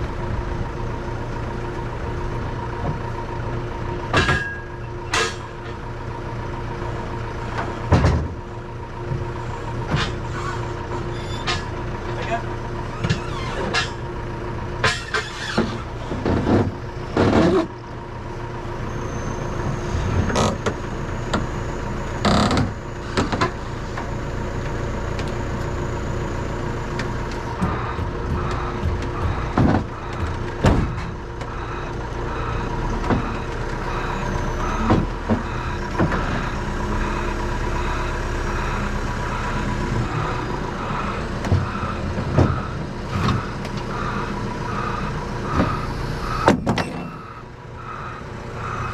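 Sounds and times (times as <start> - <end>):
lorry engine running: 0.0 - 48.9
metallic clanks and knocks: 4.1 - 5.8, 46.4 - 47.2.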